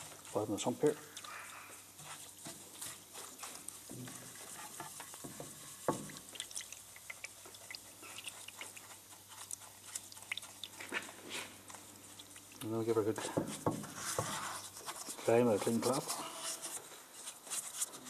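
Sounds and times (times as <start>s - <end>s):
scrubbing and scraping metal pan: 1.8s - 6.4s, 12.8s - 16.8s
small irregular clicks: 6.1s - 10.9s.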